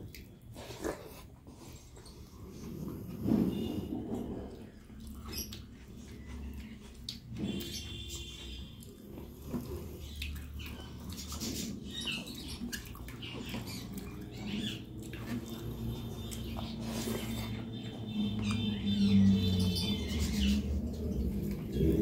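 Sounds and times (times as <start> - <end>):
wet chewing and lip smacks: 0.0 - 2.2, 4.5 - 8.0, 8.6 - 18.6.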